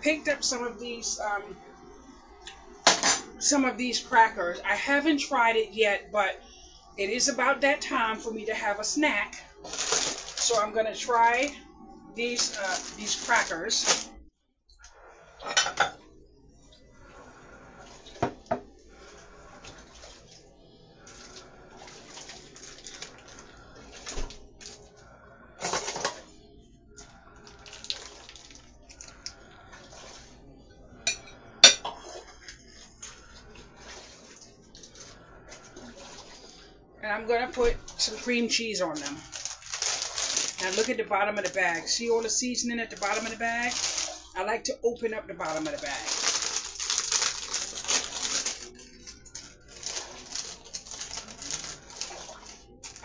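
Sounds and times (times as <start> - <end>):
plastic bag crinkling: 9.5 - 14.2, 21.0 - 24.9, 27.4 - 30.3, 37.8 - 44.4, 45.4 - 53.0.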